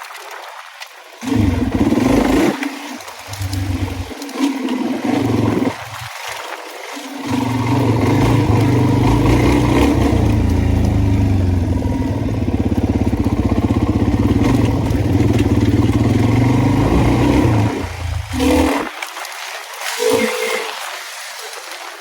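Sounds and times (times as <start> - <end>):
dirt bike engine running: 1.2 - 6.2, 7.2 - 18.9.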